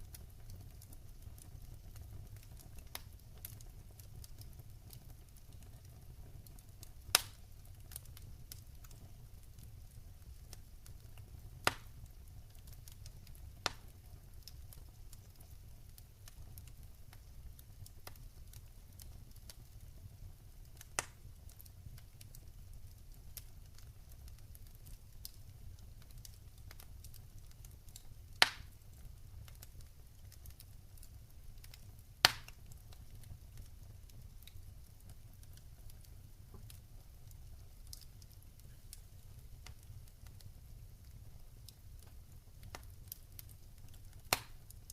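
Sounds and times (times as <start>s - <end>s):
wood fire crackling: 0.0s - 44.9s
sharp fire pops: 6.8s - 9.0s, 10.6s - 14.7s, 20.8s - 21.2s, 27.9s - 28.8s, 31.6s - 33.2s, 42.7s - 44.9s.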